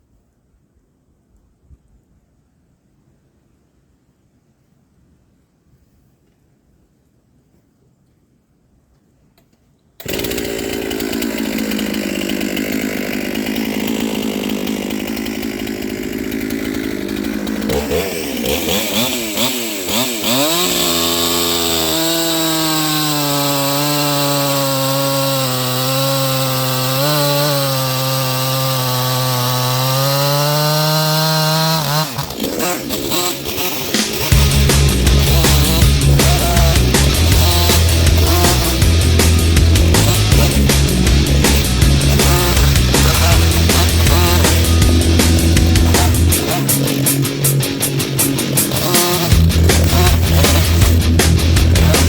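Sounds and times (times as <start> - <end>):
chainsaw cutting logs: 10.0 - 52.0.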